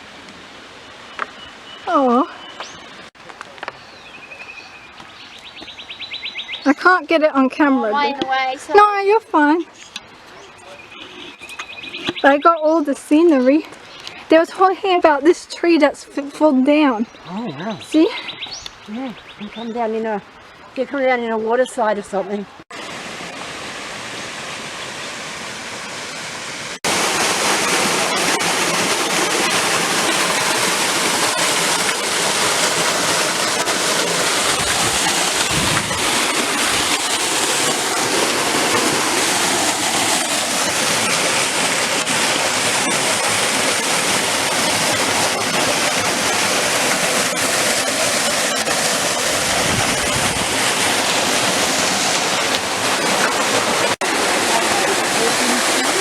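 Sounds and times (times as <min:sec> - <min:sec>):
waterfall rushing: 0:00.0 - 0:04.6, 0:22.6 - 0:56.0.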